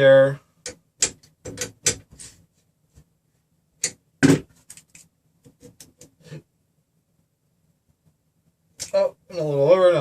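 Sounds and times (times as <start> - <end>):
hand tools clicking and tapping: 0.6 - 2.1.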